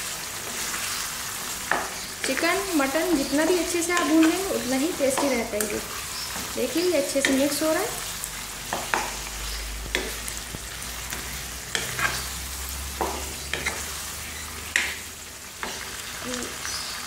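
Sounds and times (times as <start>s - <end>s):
meat and spices sizzling: 0.0s - 17.0s
spatula scraping and knocking a pan: 8.7s - 9.2s, 12.9s - 13.9s.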